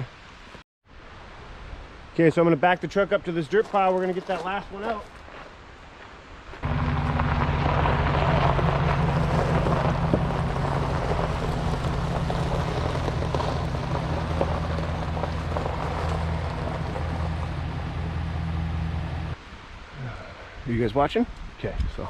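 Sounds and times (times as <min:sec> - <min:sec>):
road and wind noise: 0:00.0 - 0:22.0
truck engine running: 0:06.6 - 0:19.4.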